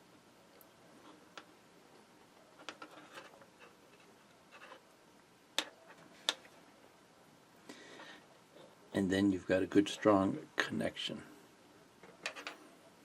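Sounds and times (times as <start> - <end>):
small clicks and scratching: 2.5 - 4.9, 12.0 - 12.6.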